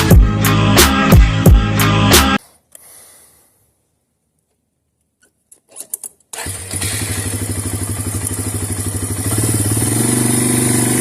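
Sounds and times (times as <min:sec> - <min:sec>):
quad bike engine running: 0:06.4 - 0:11.0.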